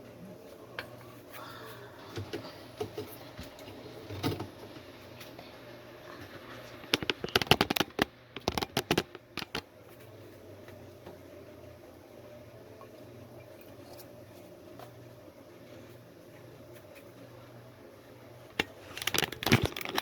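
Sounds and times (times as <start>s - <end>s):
objects being handled: 6.2s - 10.1s, 18.6s - 20.0s.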